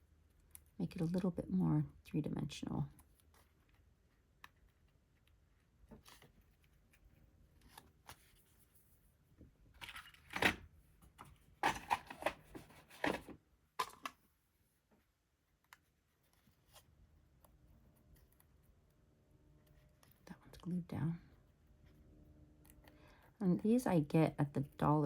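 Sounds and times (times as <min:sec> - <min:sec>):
paper rustling and crinkling: 0:09.8 - 0:13.4.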